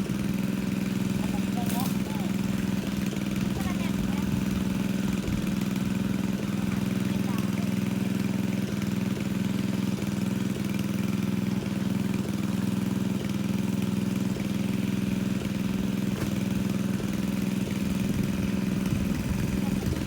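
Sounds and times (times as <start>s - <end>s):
water pump engine running: 0.0s - 20.0s.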